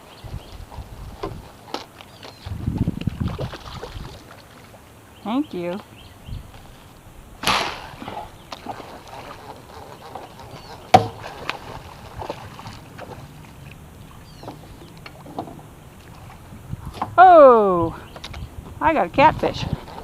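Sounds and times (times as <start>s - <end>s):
bow shot snap: 7.4s - 8.4s
short rushing noise: 7.4s - 8.5s
light knocks against boat: 10.1s - 11.6s.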